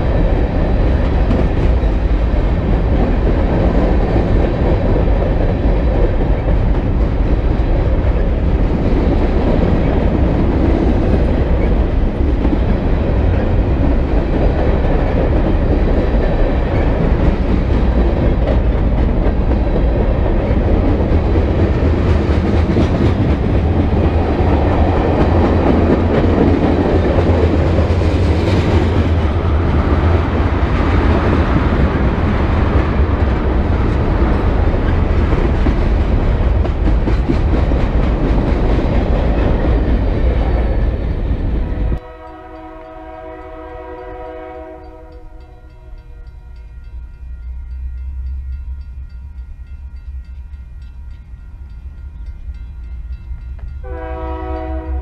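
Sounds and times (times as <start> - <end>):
freight cars rumbling on rails: 0.0 - 55.0
distant locomotive horn: 41.8 - 48.5, 53.8 - 55.0.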